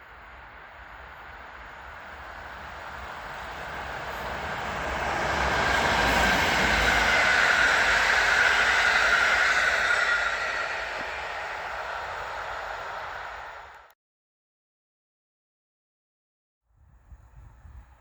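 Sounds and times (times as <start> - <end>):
train wheels rumbling: 0.0 - 13.9
high steady tone: 1.8 - 13.9.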